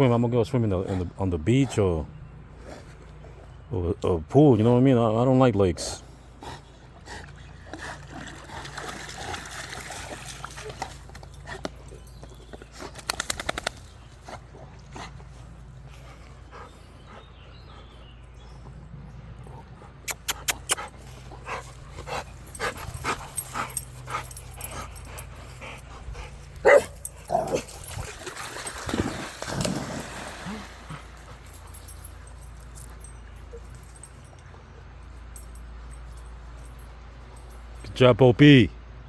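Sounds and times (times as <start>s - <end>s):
dog barking and whimpering: 26.6s - 27.7s.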